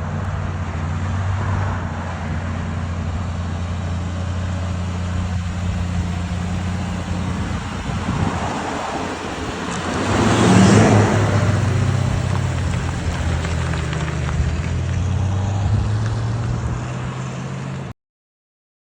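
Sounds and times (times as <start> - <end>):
car engine humming: 0.0 - 17.9
road noise: 0.0 - 18.0.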